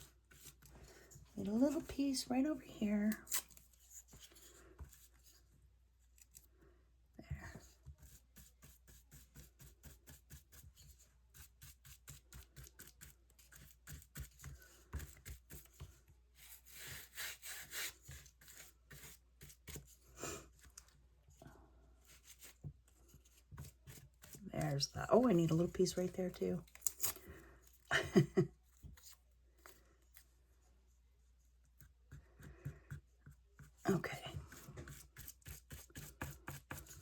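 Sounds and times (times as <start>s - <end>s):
scissors snipping paper: 3.1s - 4.0s, 26.3s - 27.2s.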